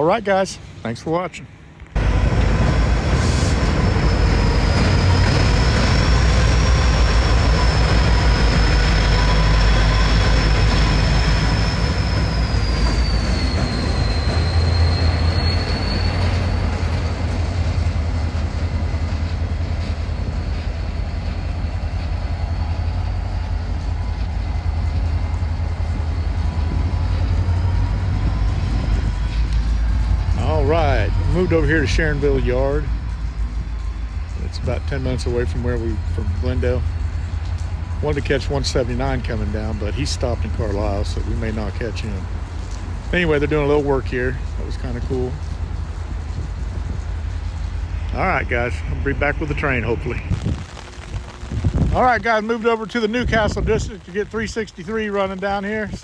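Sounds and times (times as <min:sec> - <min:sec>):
freight train rumbling past: 0:00.0 - 0:56.0
train wheels squealing: 0:01.9 - 0:42.3.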